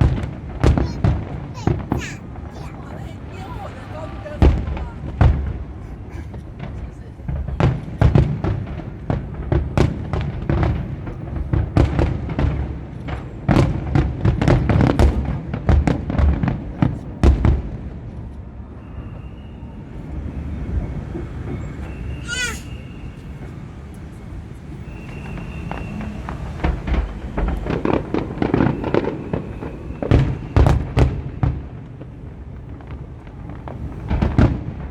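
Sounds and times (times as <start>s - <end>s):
fireworks bangs and cracks: 0.0s - 34.9s.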